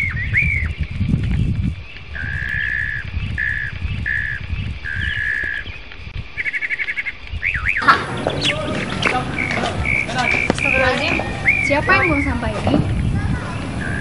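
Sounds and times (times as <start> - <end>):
birds whistling: 0.0 - 14.0
fast bird trill: 2.1 - 5.8, 6.4 - 14.0
low rumble: 7.8 - 14.0.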